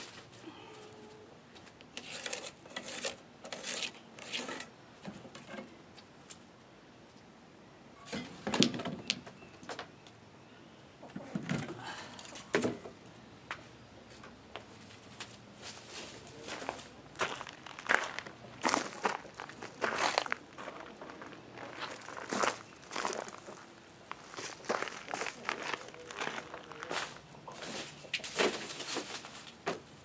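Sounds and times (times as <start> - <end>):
scrapes on wooden deck boards: 2.0 - 5.6.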